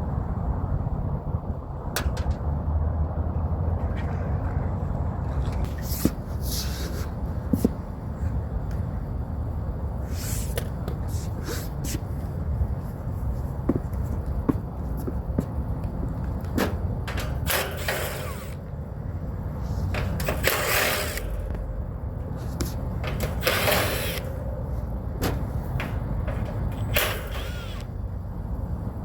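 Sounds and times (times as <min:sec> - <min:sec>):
steady low rumble: 0:00.0 - 0:29.0
rustling scraping handling noises: 0:05.6 - 0:08.4, 0:10.1 - 0:15.5, 0:19.5 - 0:28.0.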